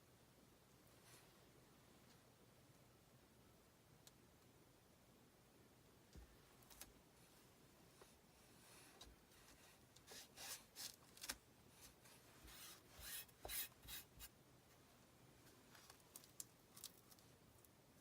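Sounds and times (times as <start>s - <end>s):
squeegee scraping: 11.8s - 14.3s.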